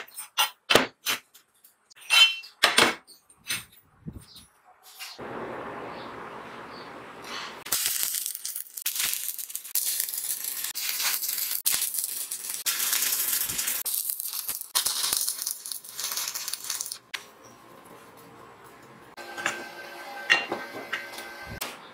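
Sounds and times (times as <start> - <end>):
welding arc crackling: 7.6 - 17.1.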